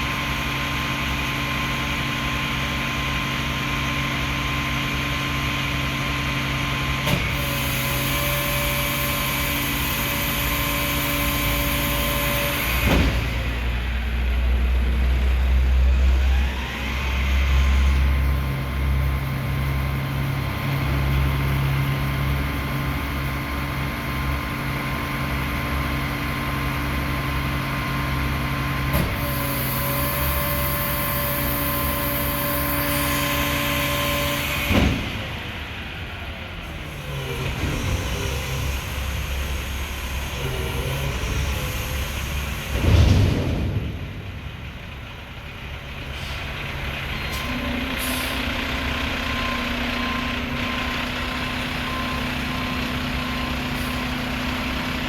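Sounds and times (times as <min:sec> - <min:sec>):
hydraulic whine: 0:00.0 - 0:14.6, 0:15.2 - 0:55.0
garbage truck engine rumble: 0:00.0 - 0:55.0.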